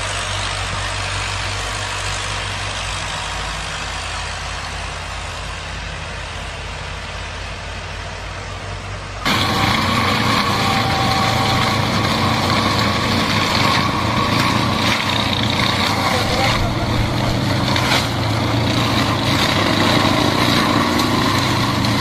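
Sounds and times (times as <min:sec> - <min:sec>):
heavy machine engine humming: 0:00.0 - 0:22.0
harsh machine whining: 0:09.2 - 0:22.0.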